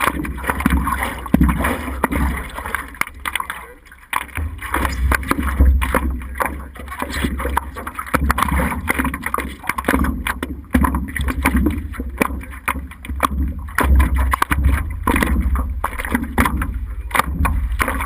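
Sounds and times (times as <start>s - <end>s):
knocks and clatters: 0.0s - 18.0s.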